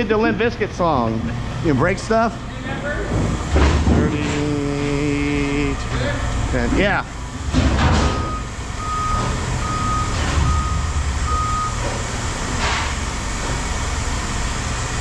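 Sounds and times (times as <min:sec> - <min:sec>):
engine rumble: 0:00.0 - 0:15.0
reversing alarm beeping: 0:08.1 - 0:11.9.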